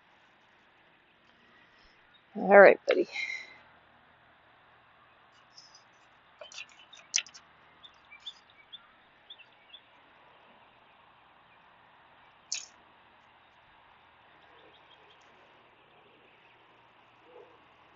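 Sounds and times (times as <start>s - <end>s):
background hiss: 0.0s - 17.9s
faint bird chirps: 4.9s - 17.9s
sharp click: 6.4s - 7.4s, 12.5s - 12.7s.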